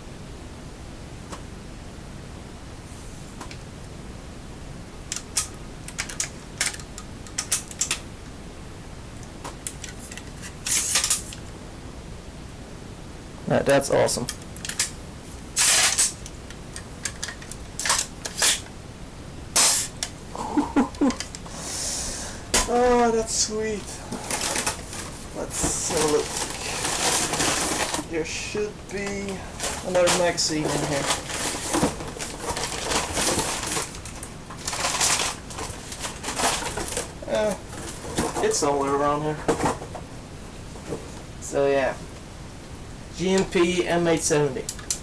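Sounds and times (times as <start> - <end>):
packaging rustling and crinkling: 23.8 - 28.1, 28.9 - 38.8.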